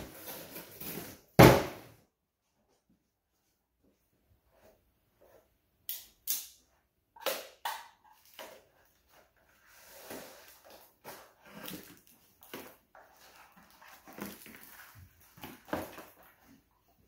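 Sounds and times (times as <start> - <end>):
plastic rustling: 10.2 - 17.0.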